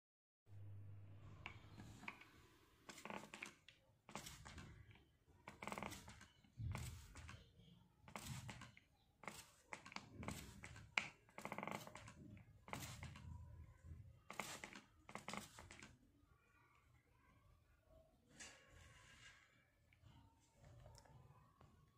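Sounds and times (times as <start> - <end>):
spray bottle squirts: 14.3 - 15.9.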